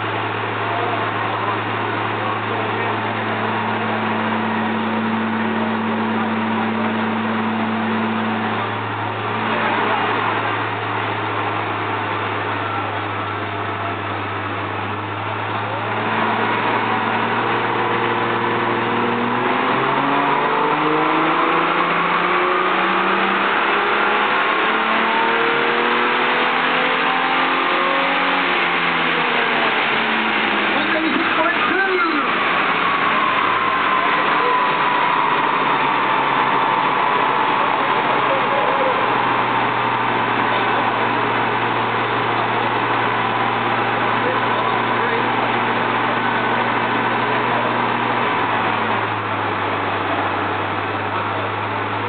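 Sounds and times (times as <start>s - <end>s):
car engine revving on a dyno: 0.0s - 52.0s
steady rush of noise: 0.0s - 52.0s.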